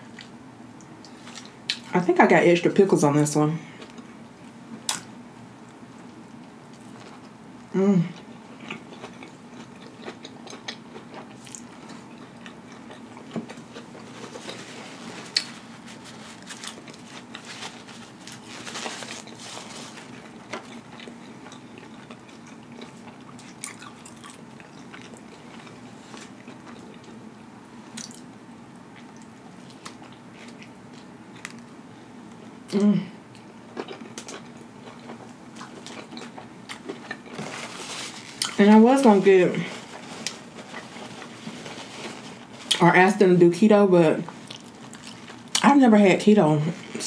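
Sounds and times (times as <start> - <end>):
close-miked chewing: 8.1 - 27.2, 33.3 - 42.8, 44.3 - 45.7
soft crunches: 11.2 - 22.2, 35.0 - 42.8.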